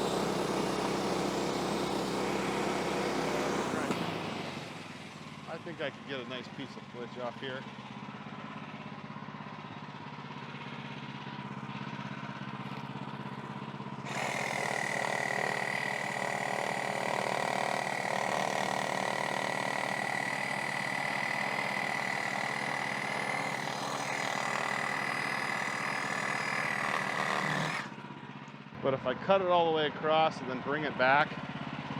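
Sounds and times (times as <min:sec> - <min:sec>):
band blade cutting log: 0:00.0 - 0:04.9, 0:14.0 - 0:28.0
sawmill engine: 0:00.0 - 0:31.9.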